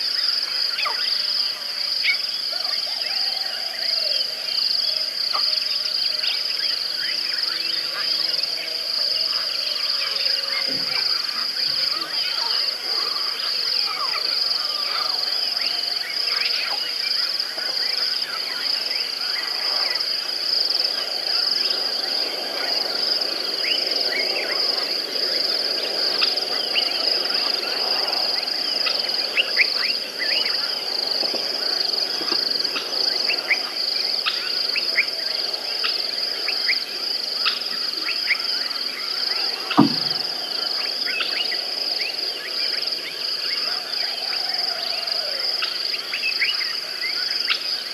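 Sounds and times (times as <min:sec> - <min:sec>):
sharp knock: 0:39.7 - 0:40.3.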